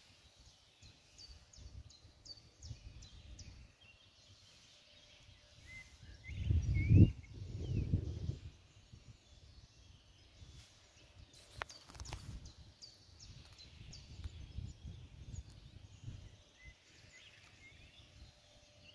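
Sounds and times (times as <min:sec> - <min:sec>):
faint bird chirps: 0:00.0 - 0:18.9.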